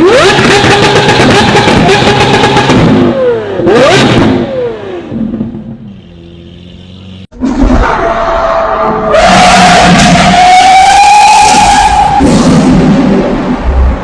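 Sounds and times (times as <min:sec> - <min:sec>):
sports car engine revving: 0:00.0 - 0:07.2.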